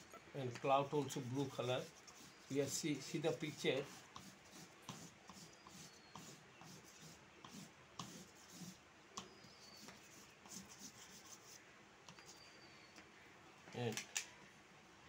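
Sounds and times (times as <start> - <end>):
colour rubbing on paper: 0.9 - 8.8, 9.4 - 11.6.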